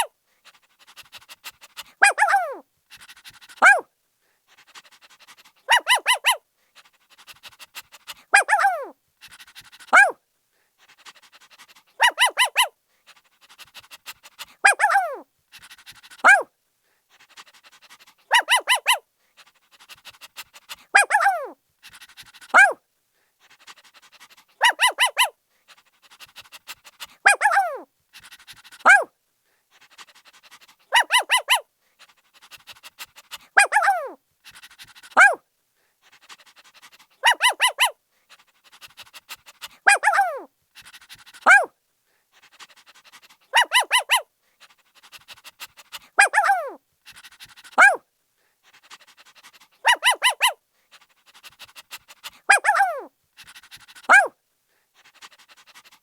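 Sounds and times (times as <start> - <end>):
puppy yipping: 2.0 - 2.6, 3.6 - 3.8, 5.7 - 6.4, 8.3 - 8.9, 9.9 - 10.2, 12.0 - 12.7, 14.6 - 15.2, 16.2 - 16.5, 18.3 - 19.0, 20.9 - 21.6, 22.5 - 22.8, 24.6 - 25.3, 27.2 - 27.9, 28.8 - 29.1, 30.9 - 31.6, 33.3 - 34.2, 35.1 - 35.4, 37.2 - 38.0, 39.8 - 40.5, 41.4 - 41.7, 43.5 - 44.2, 46.2 - 46.8, 47.8 - 48.0, 49.8 - 50.6, 52.5 - 53.1, 54.0 - 54.3.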